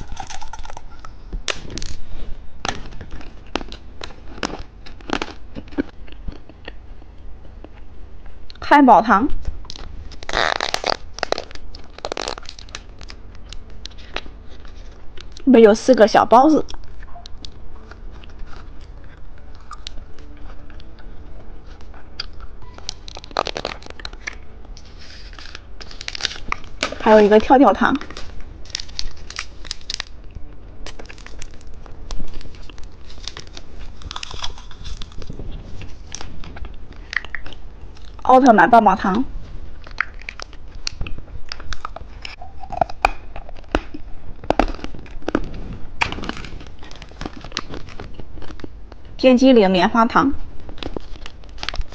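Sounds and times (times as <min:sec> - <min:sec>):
plastic candy packets handled: 0:00.0 - 0:06.8, 0:09.4 - 0:39.1, 0:39.7 - 0:49.2, 0:50.6 - 0:51.9
plastic sweet wrappers crinkling: 0:00.0 - 0:06.8, 0:09.5 - 0:15.9, 0:21.7 - 0:39.1, 0:39.7 - 0:49.2, 0:50.6 - 0:51.9.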